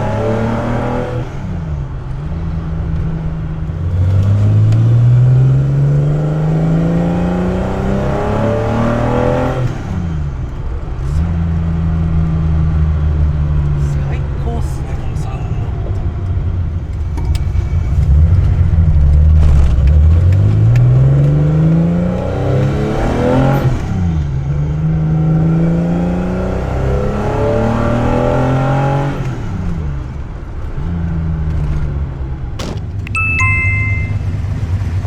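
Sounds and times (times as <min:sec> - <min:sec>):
car engine accelerating: 0:00.0 - 0:35.0
short beeps: 0:33.1 - 0:34.6.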